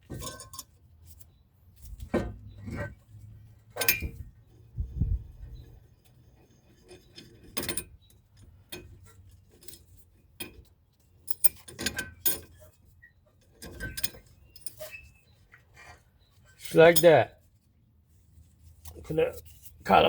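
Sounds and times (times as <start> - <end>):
metal brake parts and tools clinking: 0.0 - 4.3, 6.7 - 10.6, 13.6 - 15.1, 16.6 - 17.3.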